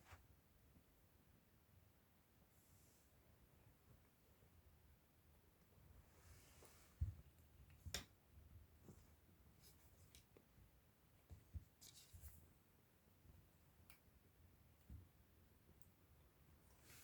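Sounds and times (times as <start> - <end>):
light taps and rustles: 6.3 - 8.2, 11.2 - 12.6.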